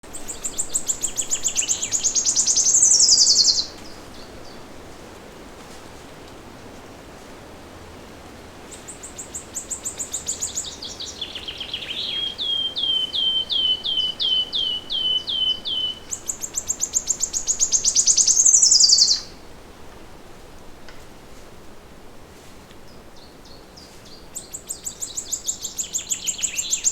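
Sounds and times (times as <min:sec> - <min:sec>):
songbird singing: 0:00.0 - 0:04.8, 0:08.6 - 0:19.5, 0:22.8 - 0:26.9
faint steady hiss: 0:00.0 - 0:26.9.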